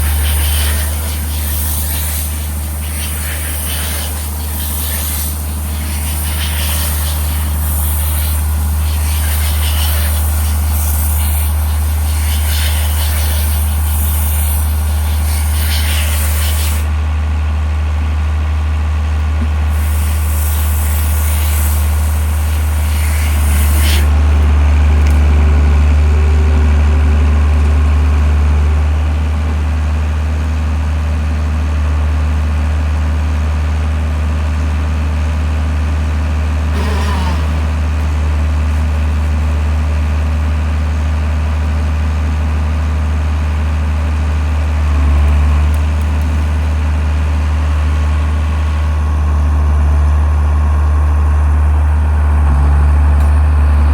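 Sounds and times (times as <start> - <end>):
high hiss: 0.0 - 16.8, 36.8 - 37.9
tractor engine running: 36.3 - 53.9.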